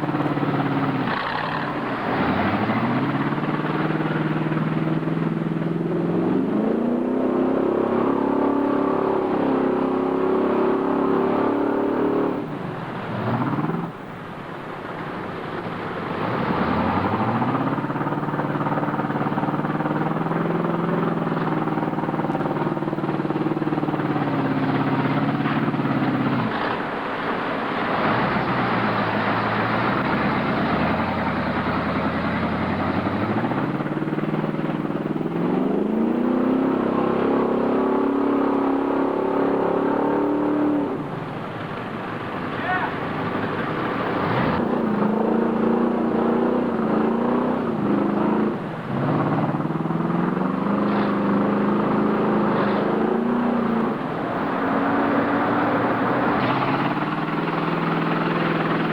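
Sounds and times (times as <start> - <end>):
truck engine revving: 0.0 - 58.9.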